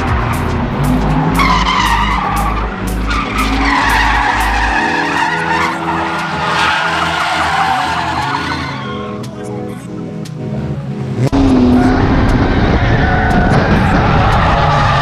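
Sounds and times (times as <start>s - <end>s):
engine revving: 0.0s - 9.3s, 10.6s - 15.0s
tyres squealing: 0.0s - 9.3s.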